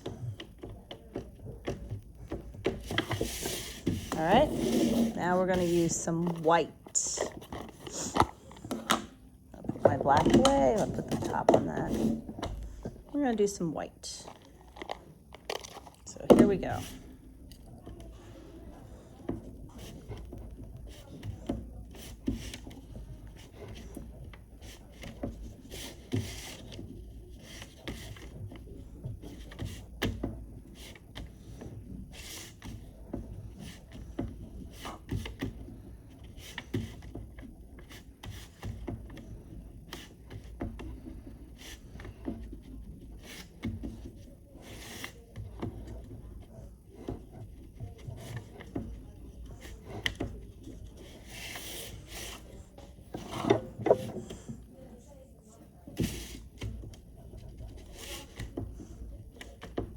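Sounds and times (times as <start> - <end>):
oil pastel scraping on paper: 2.7 - 8.8, 9.6 - 13.5, 30.6 - 55.2.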